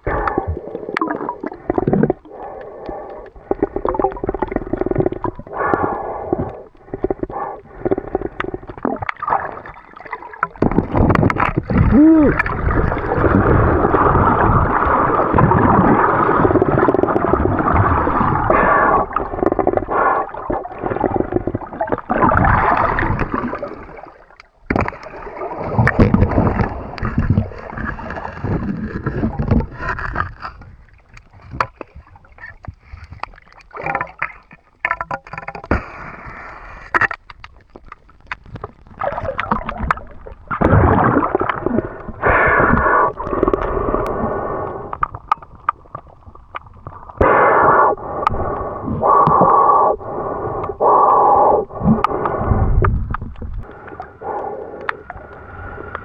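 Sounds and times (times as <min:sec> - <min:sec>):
water gurgling and sloshing: 0:00.0 - 0:56.0.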